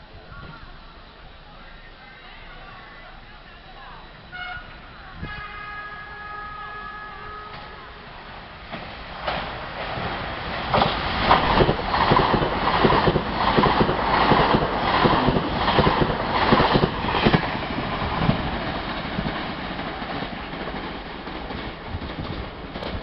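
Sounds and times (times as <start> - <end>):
train wheels clacking over rails: 8.7 - 23.0.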